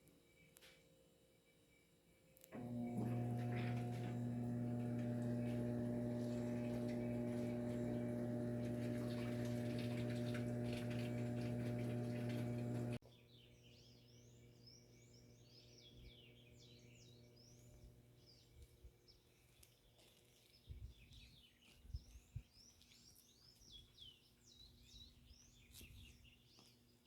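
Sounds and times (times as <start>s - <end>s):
steady low hum: 2.6s - 13.0s
small birds chirping: 3.2s - 27.0s.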